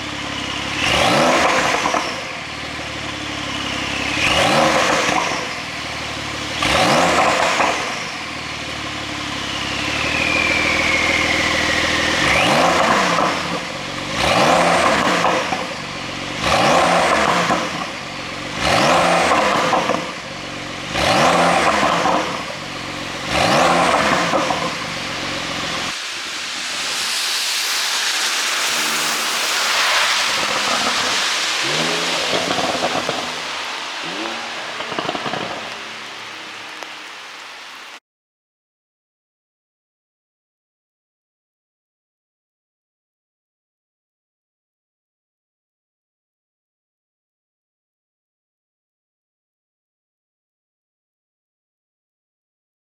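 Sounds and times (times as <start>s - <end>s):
car engine throttle blips: 27.8s - 38.0s.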